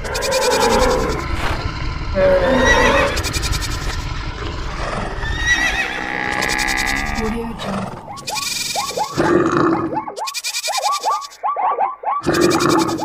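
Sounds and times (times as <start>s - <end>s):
running hooves rumbling: 0.0s - 9.9s
animal calls: 0.0s - 13.0s.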